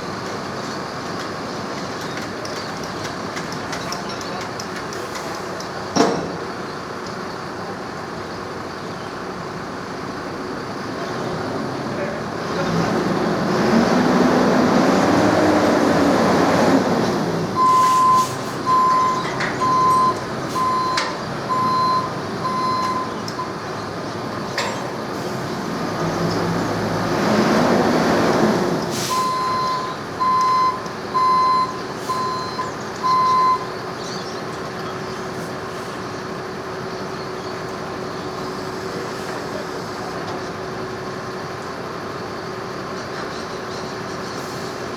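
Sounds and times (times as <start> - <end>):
diesel engine revving: 9.6 - 44.9
reversing alarm beeps: 17.6 - 23.6, 29.1 - 33.8.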